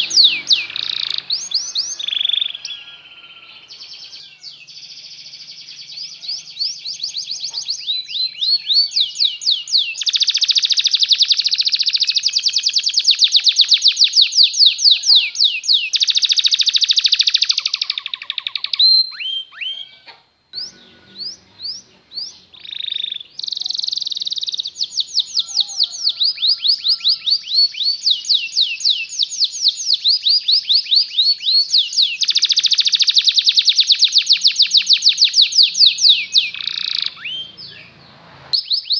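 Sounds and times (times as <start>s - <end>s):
downward-sweeping bird notes: 0.0s - 4.4s, 20.6s - 23.4s, 34.7s - 38.6s
canary trilling song: 0.0s - 38.9s.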